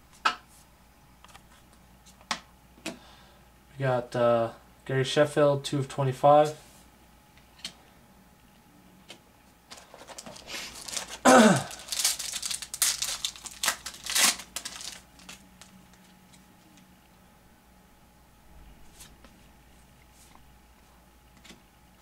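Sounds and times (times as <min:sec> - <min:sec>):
card pack wrapper crinkling: 0:09.7 - 0:16.4.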